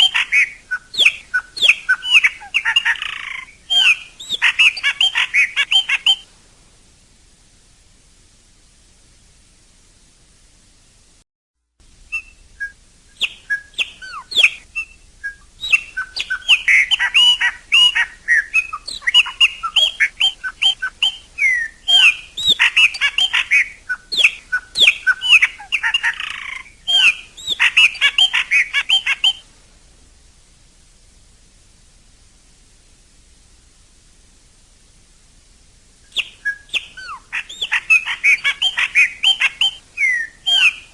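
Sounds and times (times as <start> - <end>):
blackbird singing whistled notes: 0.0 - 6.2, 12.1 - 29.4, 36.1 - 40.9.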